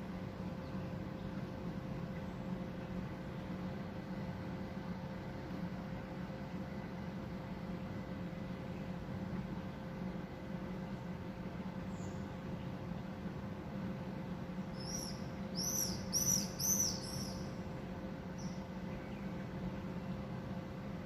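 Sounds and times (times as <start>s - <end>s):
faint hum: 0.0s - 21.0s
small bird chirping: 14.8s - 17.6s, 18.4s - 19.3s.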